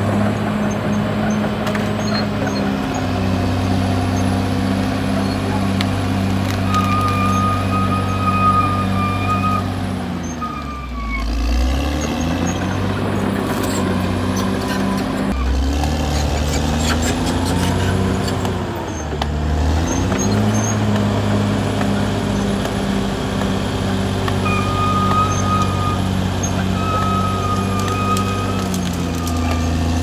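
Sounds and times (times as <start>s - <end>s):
bulldozer diesel engine running: 0.0s - 30.0s
high squealing tone: 0.0s - 30.0s.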